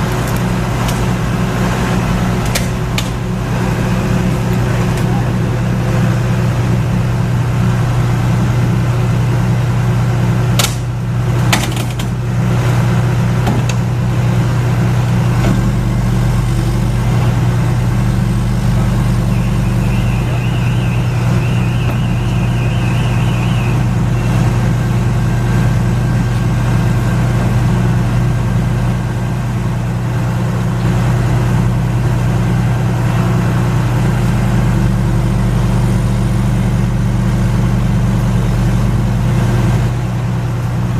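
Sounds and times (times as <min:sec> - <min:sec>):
diesel engine running: 0:00.0 - 0:40.9
warbling high-pitched tone: 0:18.6 - 0:25.2.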